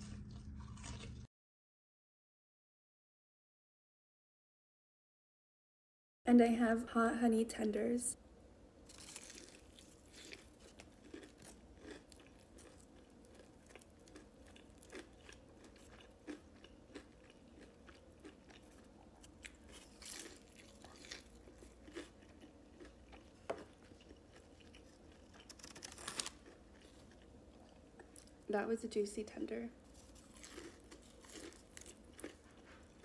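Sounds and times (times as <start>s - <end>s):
crunchy chewing: 0.0s - 1.3s, 8.9s - 28.5s, 29.8s - 33.0s.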